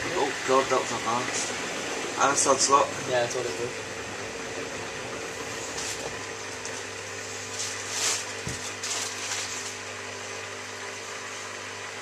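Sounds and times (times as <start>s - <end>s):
water swishing: 0.0s - 8.4s
washing machine humming: 0.0s - 12.0s.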